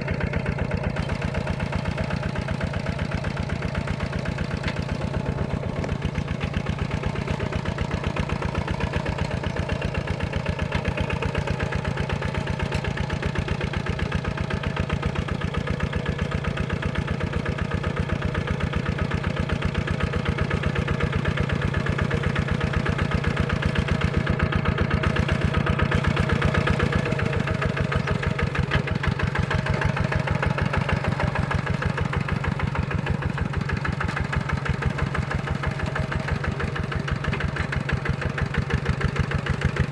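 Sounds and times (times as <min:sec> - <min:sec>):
tractor diesel engine thudding: 0:00.0 - 0:39.9.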